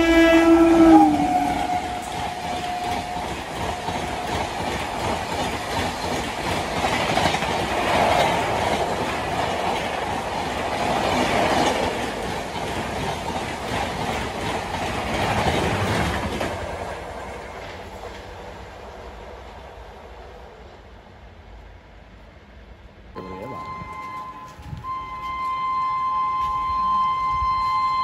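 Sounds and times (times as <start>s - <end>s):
wheels clacking over rail joints: 0.0s - 18.7s
train passing at speed: 0.0s - 28.0s.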